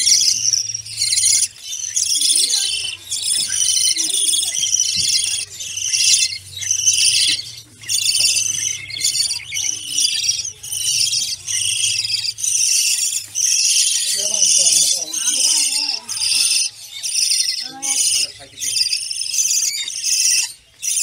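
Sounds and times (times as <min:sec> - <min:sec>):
caged birds chirping: 0:00.0 - 0:21.0.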